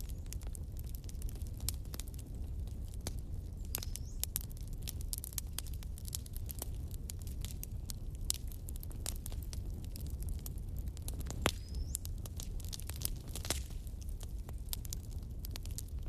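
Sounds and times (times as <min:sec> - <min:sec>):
bonfire crackling and popping: 0:00.0 - 0:16.0
low rumble of flames: 0:00.0 - 0:16.0
high whistle from burning wood: 0:11.4 - 0:12.2.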